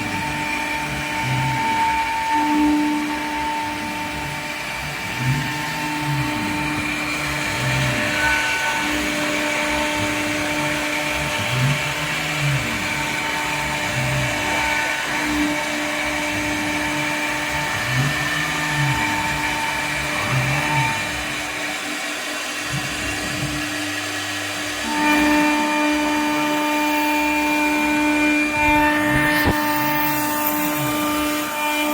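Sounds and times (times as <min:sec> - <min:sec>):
cnc router spindle whine: 0:00.0 - 0:31.9
motor whine changing pitch: 0:24.9 - 0:31.9.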